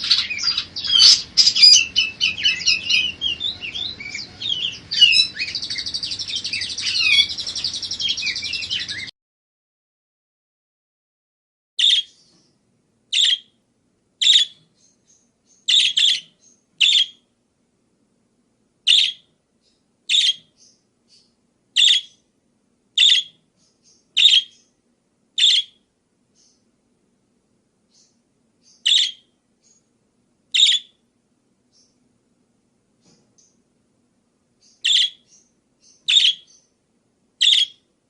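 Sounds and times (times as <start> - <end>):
parakeet chirping: 0.0 - 9.1, 11.8 - 12.4, 13.1 - 13.6, 14.2 - 17.3, 18.8 - 22.3, 22.9 - 24.7, 25.4 - 26.7, 27.9 - 29.9, 30.5 - 31.0, 34.6 - 36.8, 37.4 - 37.9.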